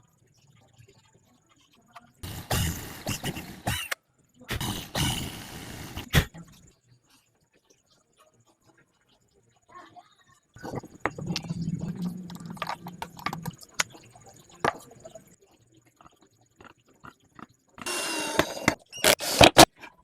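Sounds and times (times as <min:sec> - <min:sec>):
wood rubbing and scraping: 0:10.6 - 0:13.9.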